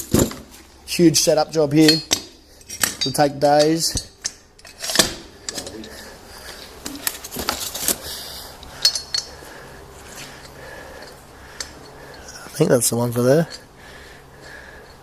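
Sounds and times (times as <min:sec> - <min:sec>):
metal parts clinking and knocking: 0:01.8 - 0:06.0, 0:08.7 - 0:09.4.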